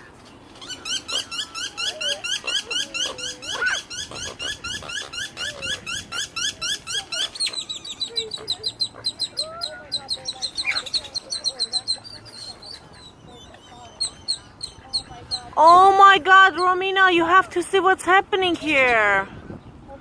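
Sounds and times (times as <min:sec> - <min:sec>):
fainter lower bird calls: 0:00.0 - 0:15.8
bird chirping rapidly: 0:00.6 - 0:15.8.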